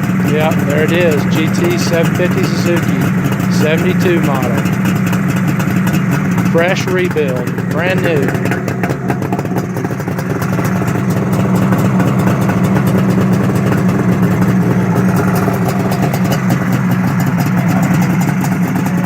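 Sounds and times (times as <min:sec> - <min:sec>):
two-stroke engine running: 0:00.0 - 0:19.0.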